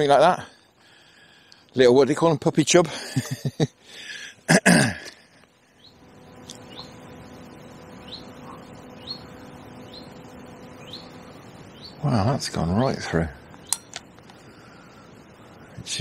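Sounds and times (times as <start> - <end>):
background hiss: 0.0 - 16.0
small bird chirping: 5.6 - 15.7.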